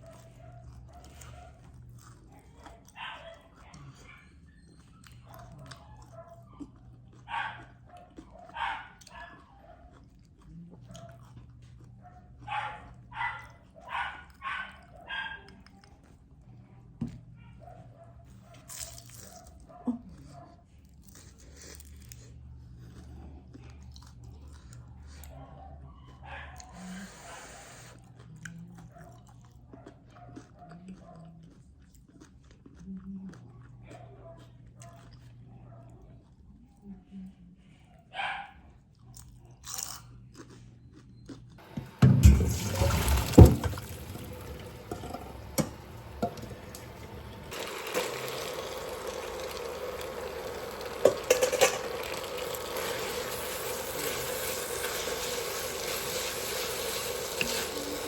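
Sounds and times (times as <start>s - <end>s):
dog barking: 0.0s - 1.7s, 2.3s - 4.4s, 5.2s - 10.0s, 10.8s - 11.4s, 12.0s - 15.9s, 17.4s - 20.6s, 25.1s - 27.6s, 28.8s - 31.4s, 33.8s - 36.2s, 38.0s - 38.8s.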